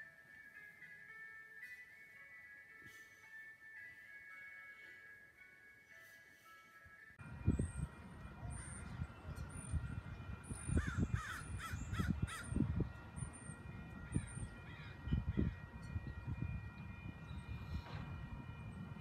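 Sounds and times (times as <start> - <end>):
birds calling: 7.2 - 19.0
wind rumble on microphone: 7.2 - 19.0.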